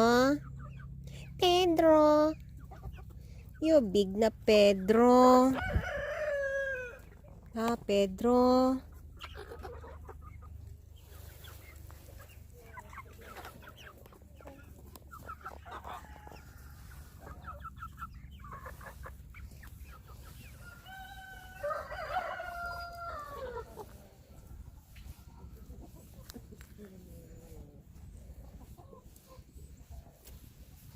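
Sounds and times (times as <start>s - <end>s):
chickens clucking: 0.0s - 30.9s
rooster crowing: 5.6s - 7.0s, 20.6s - 23.5s.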